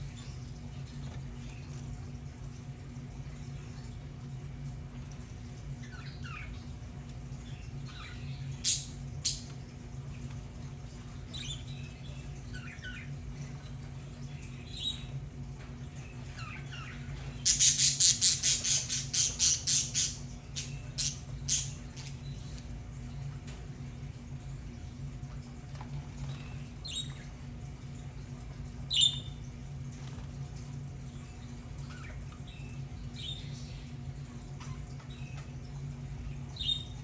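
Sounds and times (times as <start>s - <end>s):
steady low hum: 0.0s - 37.0s
budgerigars chirping: 17.5s - 21.8s.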